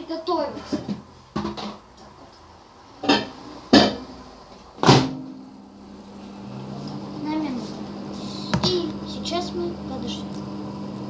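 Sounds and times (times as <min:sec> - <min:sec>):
microwave humming: 0:04.8 - 0:11.0.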